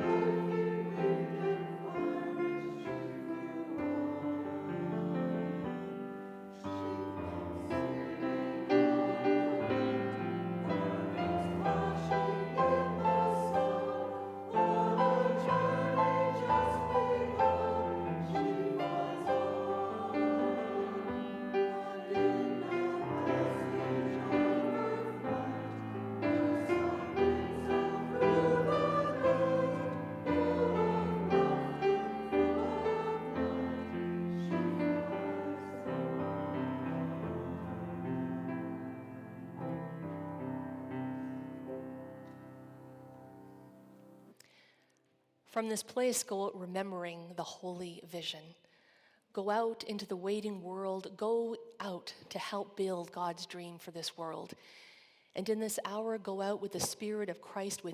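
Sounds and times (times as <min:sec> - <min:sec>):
group singing a hymn: 0:00.0 - 0:39.1
piano accompaniment: 0:00.0 - 0:44.3.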